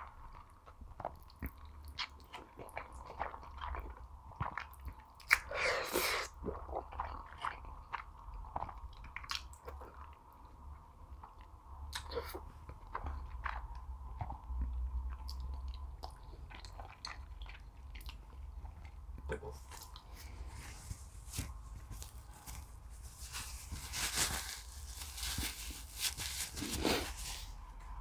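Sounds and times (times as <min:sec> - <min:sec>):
chewing and biting food: 0:00.0 - 0:10.5, 0:11.2 - 0:20.5.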